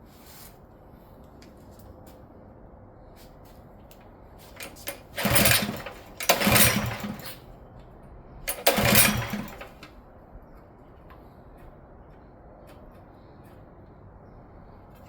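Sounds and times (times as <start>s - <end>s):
recoil starter pulls: 4.5s - 7.5s, 8.5s - 10.0s
small engine cranking: 4.6s - 7.4s, 8.5s - 9.9s.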